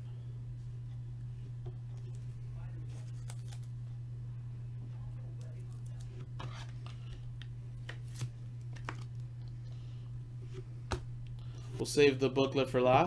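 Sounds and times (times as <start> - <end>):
low electrical hum: 0.0 - 13.0
trading cards being handled: 2.9 - 3.8, 5.3 - 9.6.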